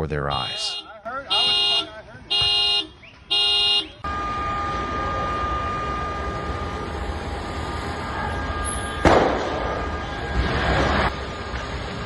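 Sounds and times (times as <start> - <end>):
rushing outdoor noise: 0.4 - 12.0
loud bang: 8.8 - 11.1.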